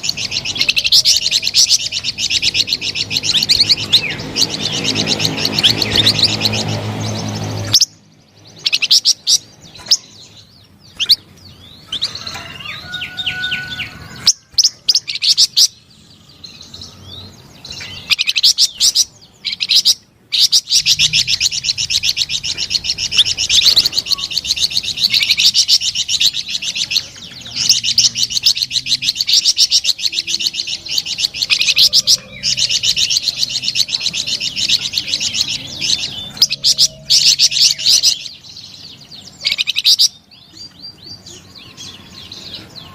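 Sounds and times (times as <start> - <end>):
songbird chattering song: 0.0 - 42.9.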